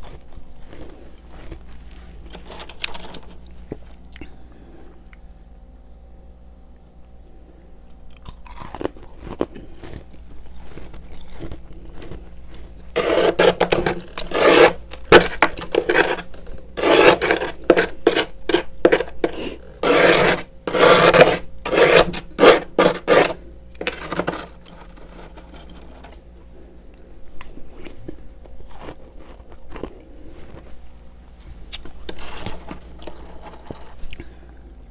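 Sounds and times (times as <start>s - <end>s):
frost being scraped: 1.3s - 3.4s, 10.6s - 26.2s, 32.0s - 34.1s.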